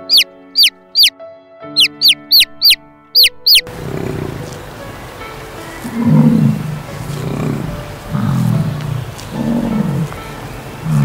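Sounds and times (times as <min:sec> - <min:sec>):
chick peeps: 0:00.0 - 0:01.1, 0:01.8 - 0:03.7
outdoor background noise: 0:00.0 - 0:01.1, 0:01.8 - 0:11.0
soft music: 0:00.0 - 0:11.0
bison grunting: 0:03.7 - 0:04.5, 0:05.9 - 0:10.2.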